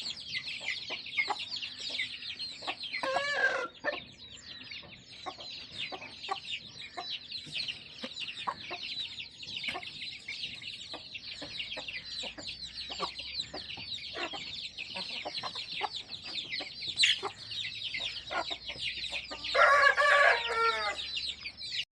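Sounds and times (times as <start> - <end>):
hens clucking: 0.0 - 21.6
chicks chirping: 0.0 - 21.9
chicken calling loudly: 19.3 - 21.1.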